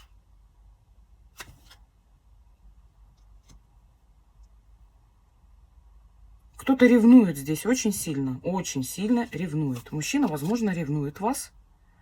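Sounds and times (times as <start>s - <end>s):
room hum: 0.0s - 12.0s.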